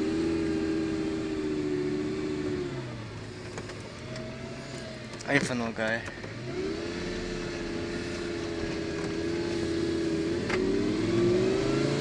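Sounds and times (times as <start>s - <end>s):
car engine accelerating: 0.0s - 12.0s
gear shift click: 8.4s - 9.4s.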